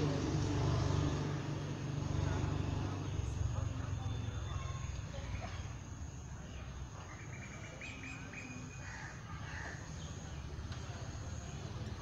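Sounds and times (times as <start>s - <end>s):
faint outdoor background noise: 0.0s - 12.0s
bird chirping: 7.1s - 8.9s.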